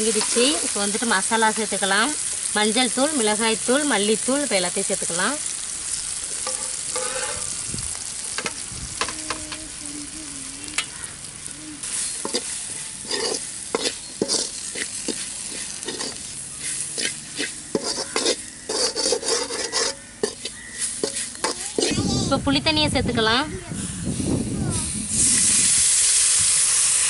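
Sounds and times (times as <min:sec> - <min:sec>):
food sizzling in a pan: 0:00.0 - 0:27.0
metal spatula scraping pan: 0:06.4 - 0:07.5, 0:12.0 - 0:22.0.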